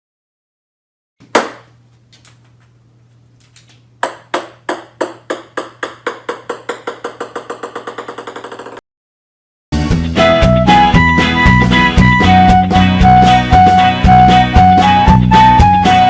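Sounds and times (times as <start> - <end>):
hard object knock: 4.0 - 8.8
small object bouncing: 4.0 - 8.8.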